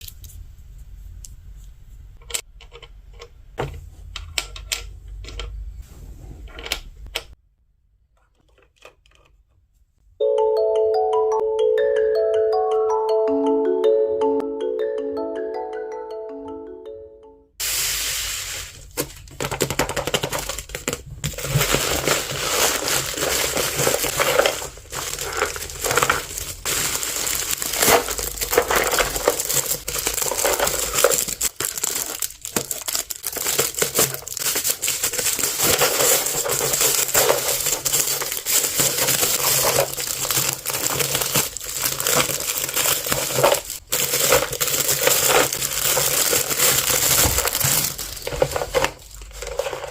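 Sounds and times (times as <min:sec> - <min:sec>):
plastic packaging crinkling: 0:17.6 - 0:49.9.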